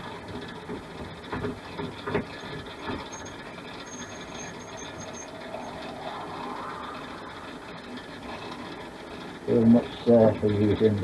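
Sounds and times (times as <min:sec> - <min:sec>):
lathe running: 0:00.0 - 0:10.8
drill bit boring acrylic: 0:02.2 - 0:05.8.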